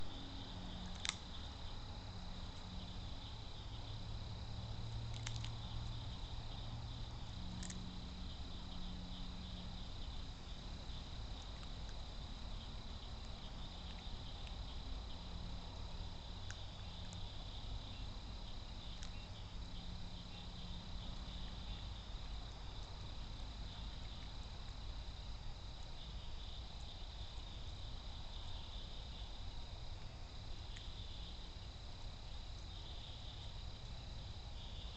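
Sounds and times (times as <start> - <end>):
insects trilling: 0.0 - 34.9
low background rumble: 0.0 - 34.9
faint clicks: 7.6 - 7.8.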